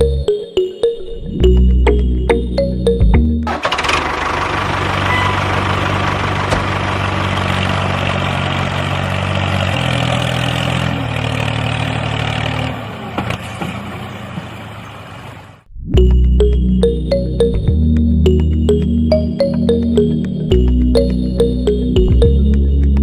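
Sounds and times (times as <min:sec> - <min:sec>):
small engine running: 0:03.5 - 0:12.8.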